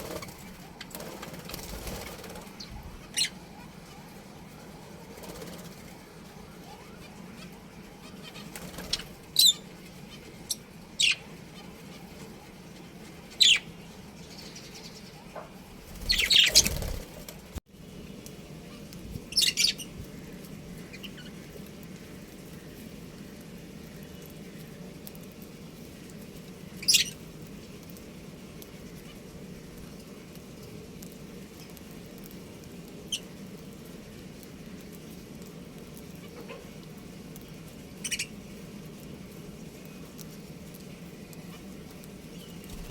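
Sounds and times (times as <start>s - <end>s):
budgerigars chirping: 16.0s - 17.0s.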